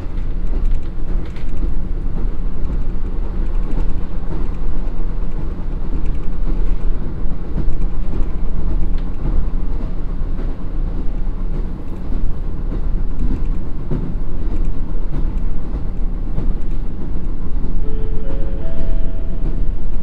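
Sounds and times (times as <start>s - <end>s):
rail-joint clicks: 0.0s - 20.0s
train wheels rumbling on rail: 0.0s - 20.0s
steady tones: 17.7s - 20.0s.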